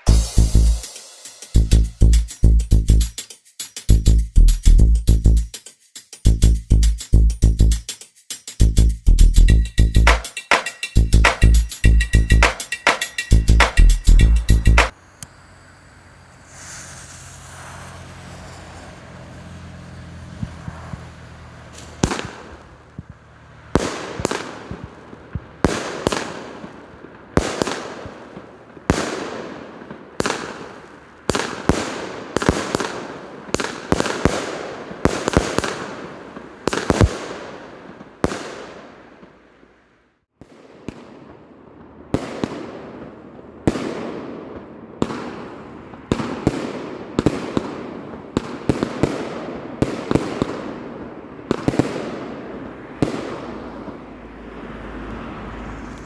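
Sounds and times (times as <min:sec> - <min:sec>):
hiss and crackle: 0:00.0 - 0:01.8, 0:14.9 - 0:19.6, 0:21.7 - 0:39.8
fireworks battery firing: 0:10.0 - 0:19.6, 0:20.4 - 0:39.5, 0:40.4 - 0:54.0.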